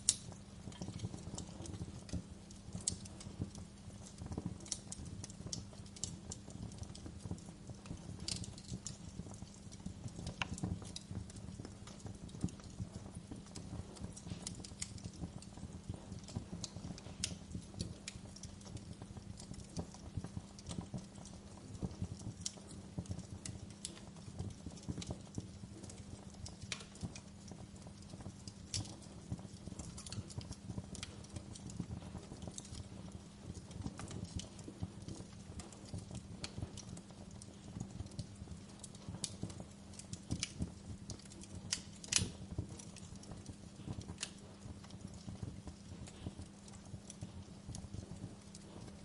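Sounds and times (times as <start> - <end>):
fire crackling and popping: 0.0 - 49.0.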